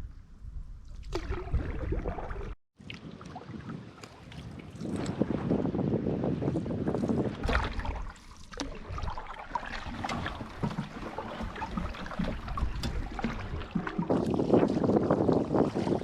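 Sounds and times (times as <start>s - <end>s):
water splashing and trickling: 0.8s - 5.9s, 6.5s - 16.0s
paddles dipping: 7.0s - 16.0s.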